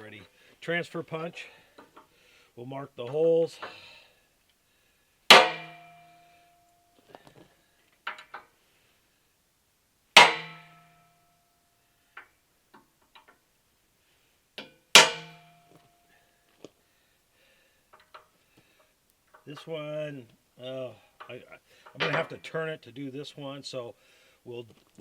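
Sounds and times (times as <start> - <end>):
hammer striking a punch on steel: 5.3 - 6.1, 10.2 - 11.0, 15.0 - 15.6
steel ringing: 5.3 - 6.8, 10.2 - 11.5.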